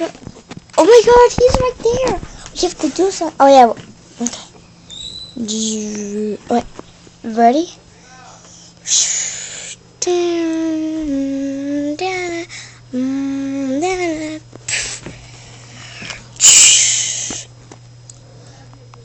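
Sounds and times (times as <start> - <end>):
child singing wordless notes: 10.0 - 14.4
hissing bursts: 16.4 - 17.5.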